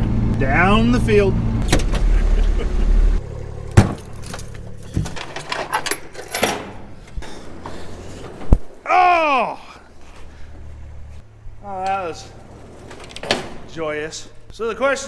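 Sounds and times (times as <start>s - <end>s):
vehicle engine running: 0.0s - 8.2s, 9.9s - 12.8s
keys jangling: 3.8s - 7.1s.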